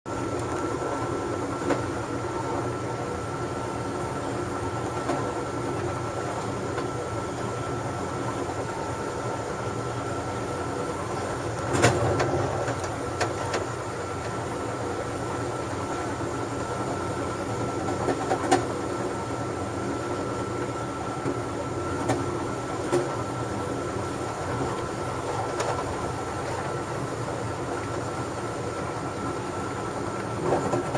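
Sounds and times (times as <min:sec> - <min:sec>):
steady high hum: 0:00.1 - 0:30.9
train rumble: 0:00.1 - 0:30.9
train knocks and clacks: 0:04.7 - 0:19.1, 0:21.2 - 0:23.4, 0:30.2 - 0:30.9.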